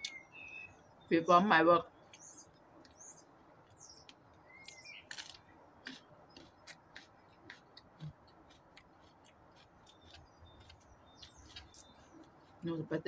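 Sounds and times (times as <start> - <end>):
bird chirping: 0.0 - 13.0
close-up chewing crunches: 2.9 - 12.7.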